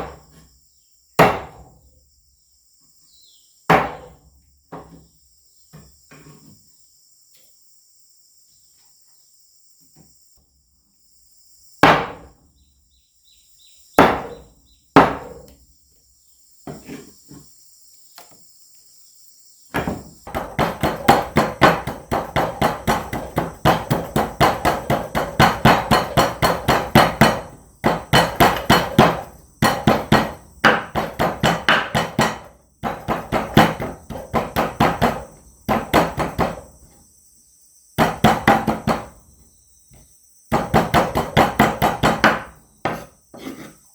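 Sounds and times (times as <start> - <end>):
insects buzzing: 0.0 - 43.9
knife chopping on wooden board: 15.0 - 15.4, 19.8 - 36.6, 40.5 - 43.7.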